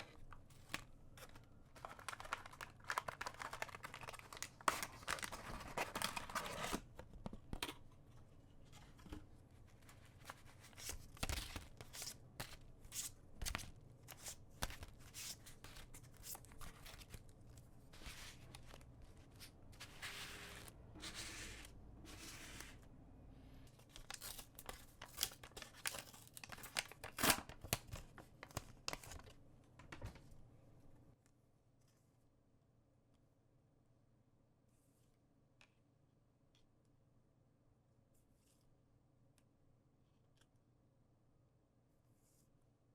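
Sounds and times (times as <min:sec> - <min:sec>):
plastic packaging tearing and crinkling: 0:24.0 - 0:29.2.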